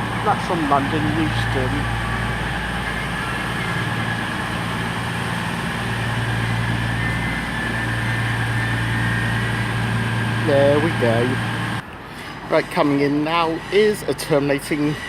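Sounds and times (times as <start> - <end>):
faint high whine: 0.0 - 11.8
diesel train engines idling: 0.0 - 15.0.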